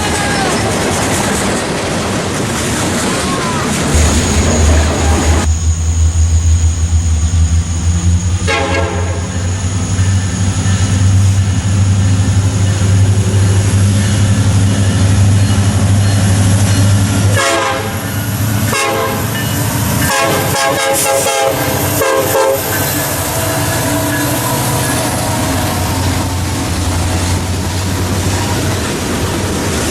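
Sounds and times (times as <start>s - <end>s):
locomotive engine rumble: 0.0s - 29.9s
rail cars clicking and rattling: 0.0s - 29.9s
train air horn: 8.3s - 9.5s, 17.3s - 18.1s, 18.7s - 19.4s, 20.0s - 26.9s.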